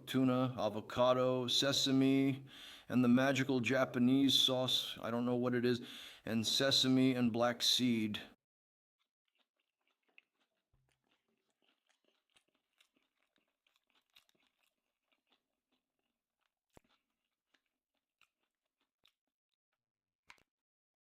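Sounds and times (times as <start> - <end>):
person chewing with soft crunches: 9.0 - 20.6.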